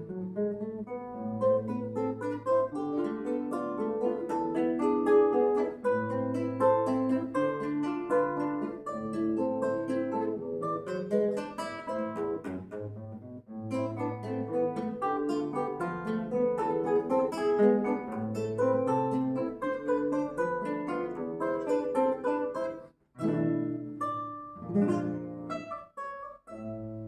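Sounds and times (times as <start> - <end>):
acoustic guitar playing: 0.0 - 27.0.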